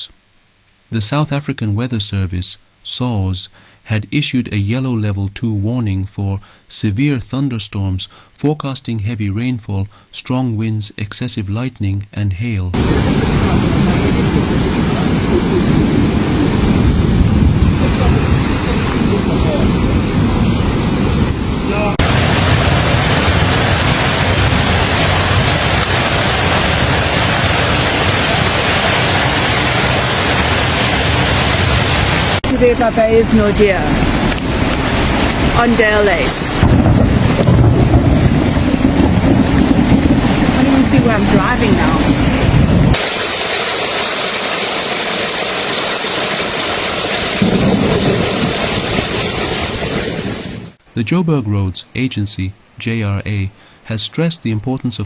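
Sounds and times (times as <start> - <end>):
low rumble: 12.8 - 43.0
loud rush of water: 12.8 - 50.8
heavy rain on a car: 21.7 - 50.8.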